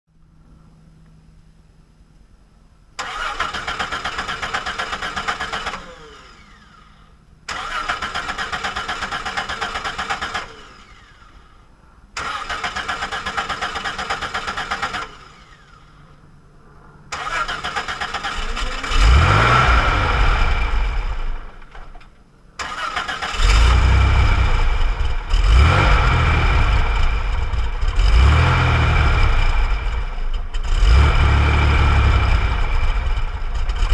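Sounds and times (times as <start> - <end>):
engine starter cranking: 3.0 - 6.8, 7.5 - 11.2, 12.2 - 15.7, 17.1 - 24.2
engine revving: 7.5 - 11.3, 17.1 - 21.9, 22.6 - 33.9.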